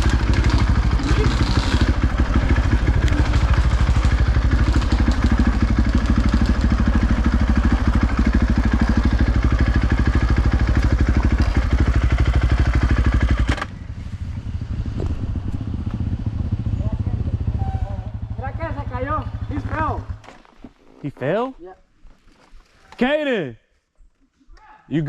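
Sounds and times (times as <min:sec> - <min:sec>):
dirt bike engine running: 0:00.0 - 0:20.3.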